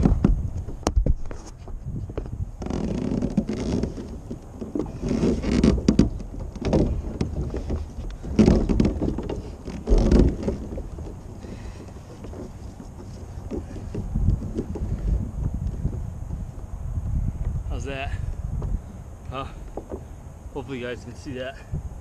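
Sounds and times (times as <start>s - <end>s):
handling knocks and rustles: 0.0s - 16.7s, 19.5s - 20.7s
wind buffeting microphone: 0.0s - 22.0s.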